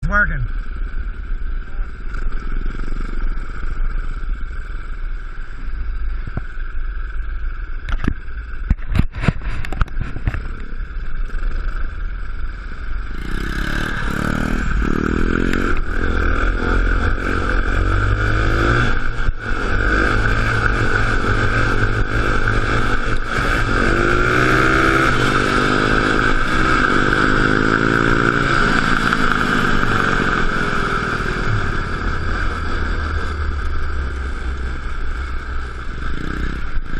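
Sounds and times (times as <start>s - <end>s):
small engine revving: 13.0s - 36.9s.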